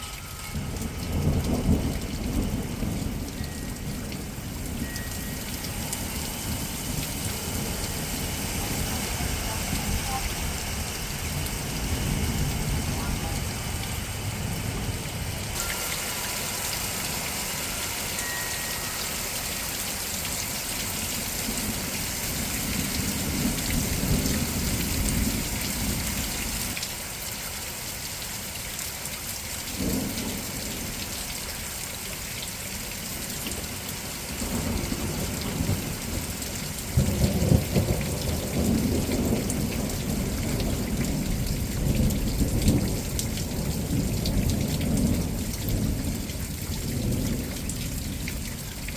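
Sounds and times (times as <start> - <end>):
steady rain hissing: 0.0 - 48.9
thunder rumbling: 0.5 - 15.7, 21.0 - 26.7, 34.4 - 48.7.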